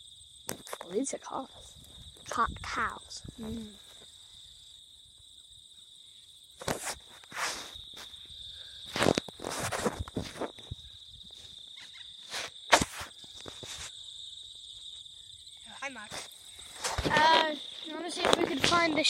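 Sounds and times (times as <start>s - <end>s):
crickets trilling: 0.0s - 19.0s
footsteps: 6.6s - 8.3s, 8.9s - 13.9s, 16.0s - 19.0s.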